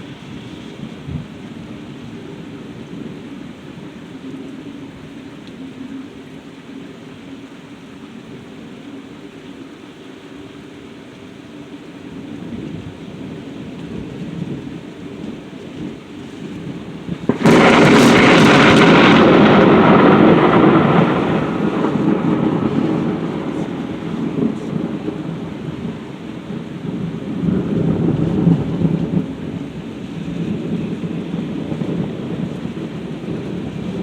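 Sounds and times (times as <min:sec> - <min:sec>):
steady rain: 0:00.0 - 0:34.0
thunder rumble: 0:12.1 - 0:34.0
loud thunderclap: 0:17.0 - 0:34.0.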